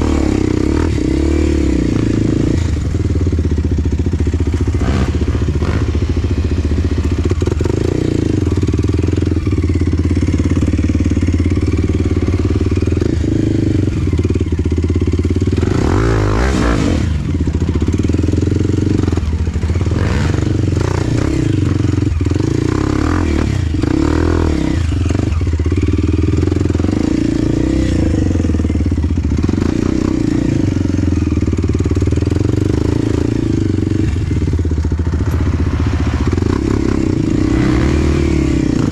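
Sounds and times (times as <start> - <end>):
dirt bike engine revving: 0.0 - 38.9
rush of noise: 33.1 - 38.9.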